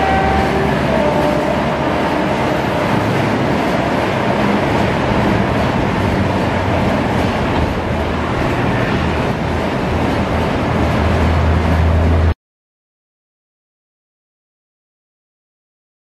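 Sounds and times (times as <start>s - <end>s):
train wheels rolling on track: 0.0s - 12.3s.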